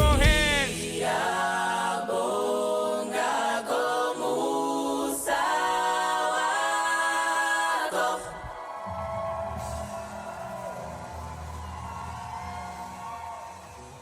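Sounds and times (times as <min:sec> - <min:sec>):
backing beat and bass: 0:00.0 - 0:01.1
vocal group singing in harmony: 0:00.0 - 0:10.6.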